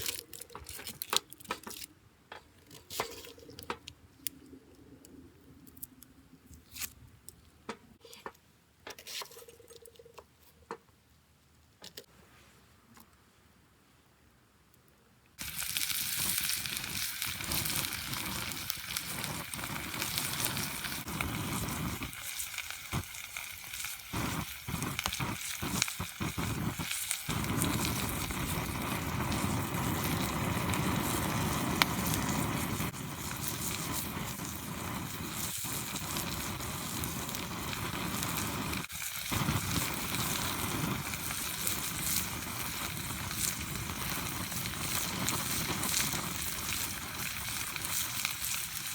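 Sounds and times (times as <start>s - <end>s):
campfire crackling: 0.0s - 1.9s, 15.4s - 48.9s
food sizzling: 15.4s - 48.9s.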